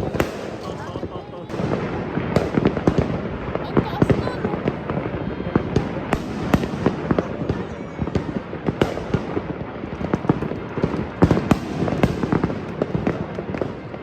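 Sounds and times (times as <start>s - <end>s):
fireworks bangs and crackling pops: 0.0s - 14.0s.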